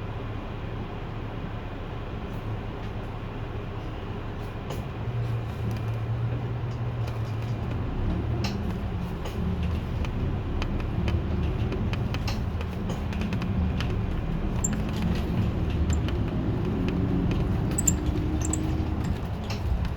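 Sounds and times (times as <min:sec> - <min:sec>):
bus diesel engine running: 0:00.0 - 0:19.9
road noise: 0:00.0 - 0:19.9
sharp rattles: 0:11.3 - 0:19.9.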